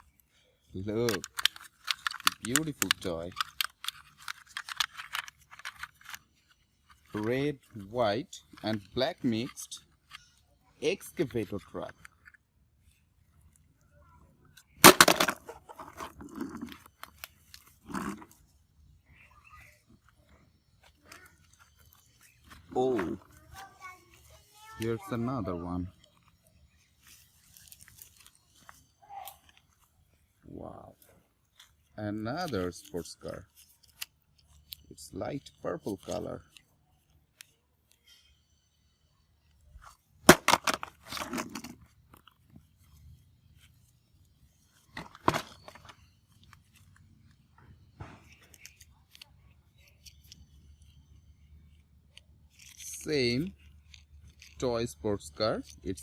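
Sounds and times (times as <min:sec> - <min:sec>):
crunchy rustle: 0:00.0 - 0:38.7, 0:39.4 - 0:56.0
plastic toy clattering: 0:00.8 - 0:10.4, 0:14.5 - 0:18.4, 0:39.4 - 0:43.0, 0:44.8 - 0:47.1, 0:52.5 - 0:56.0.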